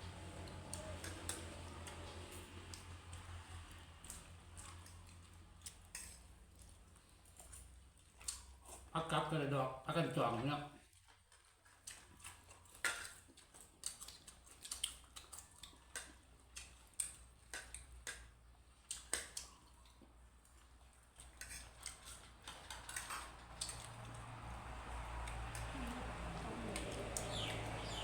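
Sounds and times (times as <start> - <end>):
faint low hum: 16.7 - 28.0.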